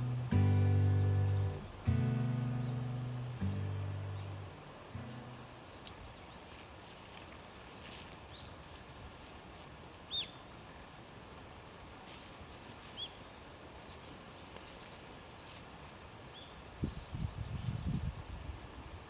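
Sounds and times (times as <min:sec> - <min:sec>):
bird chirping: 0:00.0 - 0:06.4, 0:10.1 - 0:10.4
faint background noise: 0:00.0 - 0:19.0.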